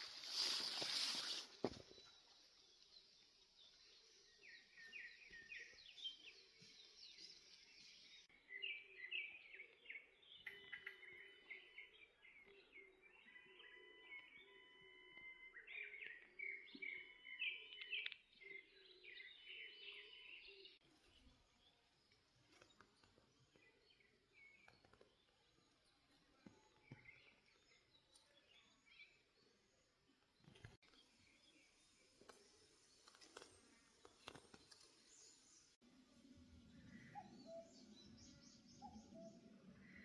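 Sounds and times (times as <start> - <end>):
birds chirping and whistling: 4.4 - 20.8, 36.8 - 40.0.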